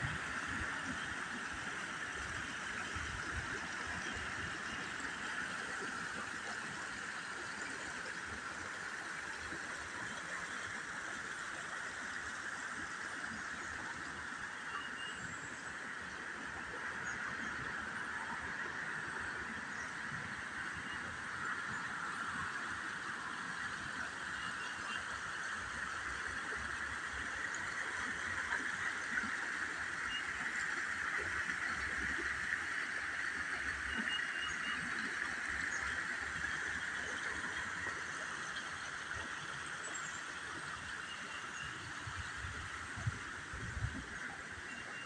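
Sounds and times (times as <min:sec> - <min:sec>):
creek water rushing: 0:15.7 - 0:45.0.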